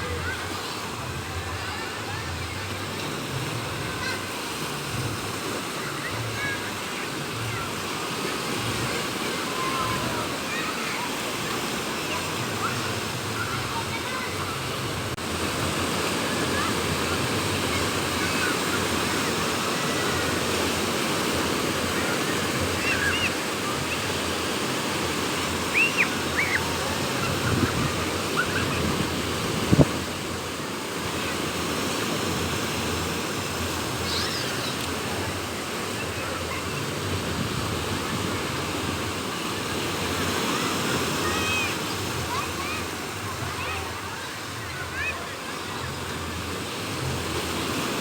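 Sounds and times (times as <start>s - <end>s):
sea waves breaking on beach: 0.0s - 48.0s
wind blowing: 20.0s - 44.1s.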